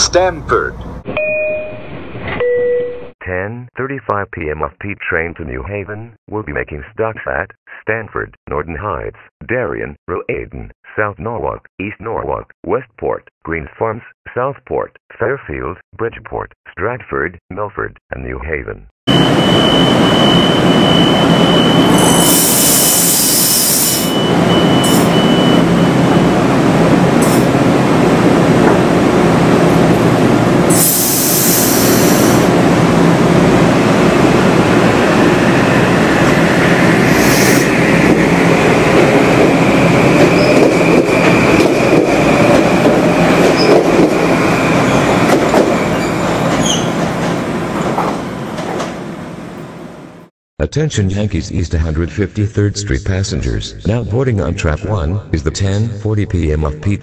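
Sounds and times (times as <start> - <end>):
train rail running noise: 19.1 - 50.0
short hisses: 30.8 - 32.5, 37.1 - 37.8.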